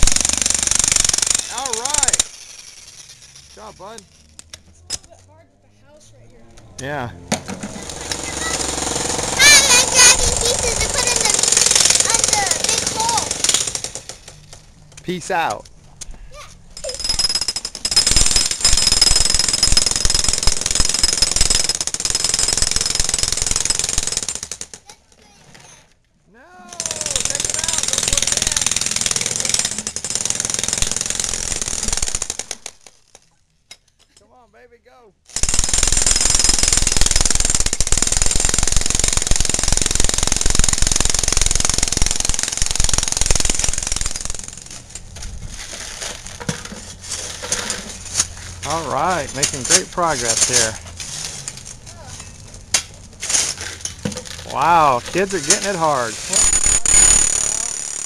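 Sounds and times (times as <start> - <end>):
jackhammer hammering concrete: 0.0 - 4.0, 7.3 - 14.6, 16.8 - 24.9, 26.7 - 32.9, 35.3 - 45.0, 48.6 - 50.9, 54.0 - 58.0.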